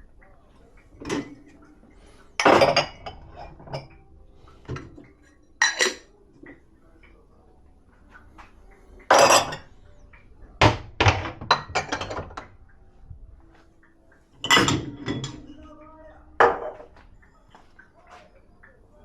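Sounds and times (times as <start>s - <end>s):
dishes and cutlery clattering: 0.9s - 1.6s, 2.4s - 6.6s, 9.0s - 9.7s, 10.6s - 12.6s, 14.4s - 15.6s, 16.4s - 18.2s.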